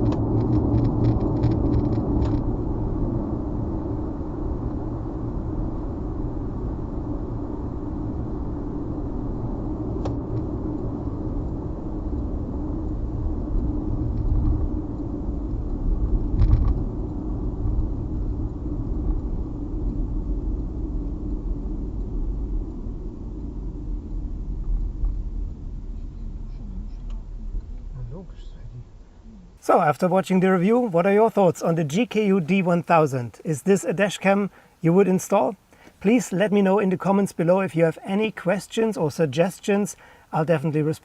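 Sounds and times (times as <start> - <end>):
car cabin road rumble: 0.0 - 36.7.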